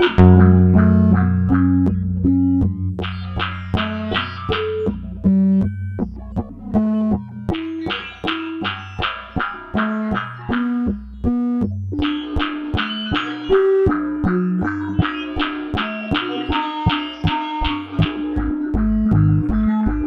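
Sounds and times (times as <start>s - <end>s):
synth bass line: 0.0s - 4.3s
synthesizer plucked melody: 0.0s - 20.0s.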